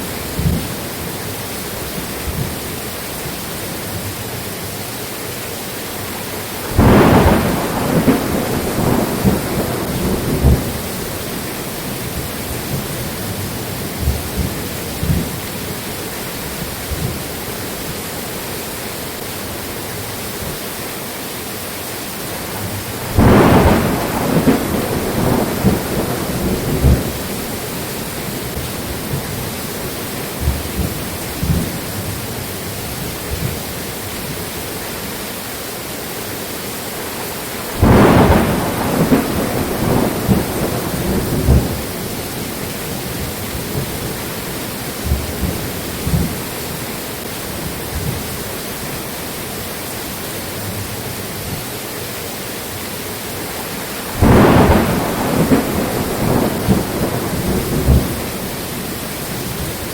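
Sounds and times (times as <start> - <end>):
rain hiss: 0.0 - 59.9
loud thunderclaps: 0.2 - 1.1, 6.7 - 15.6, 22.6 - 32.3, 37.7 - 46.6, 54.1 - 59.9
thunder rumbling: 6.7 - 15.8, 22.5 - 33.7, 37.5 - 46.8, 54.0 - 59.9.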